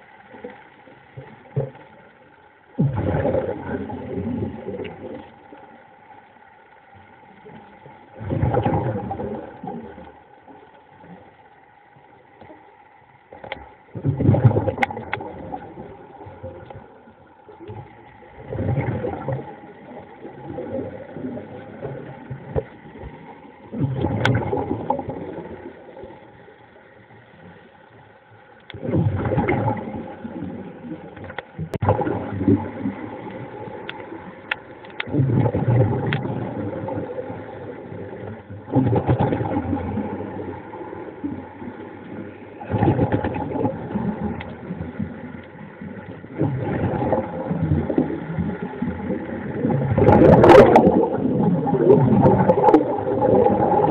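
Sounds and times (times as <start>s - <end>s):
faint underwater motor hum: 0.0s - 53.9s.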